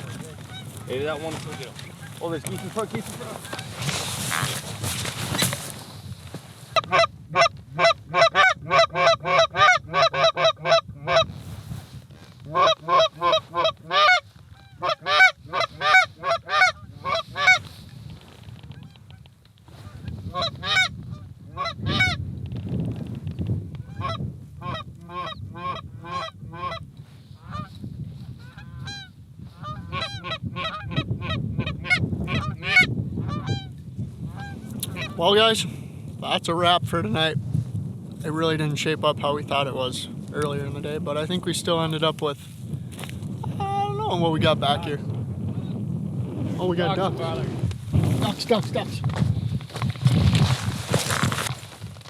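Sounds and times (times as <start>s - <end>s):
goose honking and clucking: 0.0s - 4.5s, 6.8s - 11.3s, 12.5s - 17.6s, 19.9s - 22.2s, 23.8s - 26.8s, 28.4s - 33.7s, 34.3s - 35.2s.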